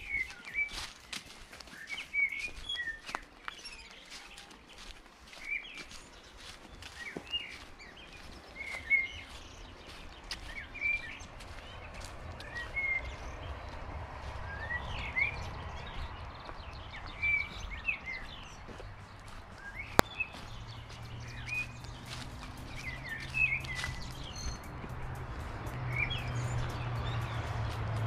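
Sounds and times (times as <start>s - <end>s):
small birds chirping: 0.0s - 28.0s
low rumble: 11.1s - 28.0s.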